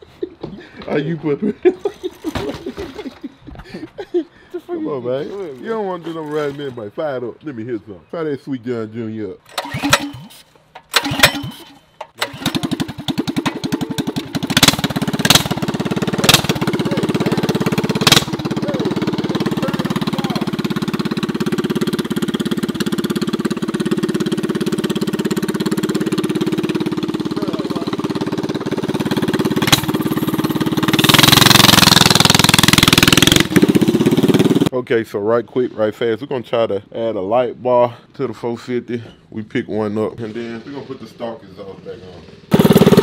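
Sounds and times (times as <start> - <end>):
dirt bike engine idling: 9.7 - 34.7, 42.5 - 43.0.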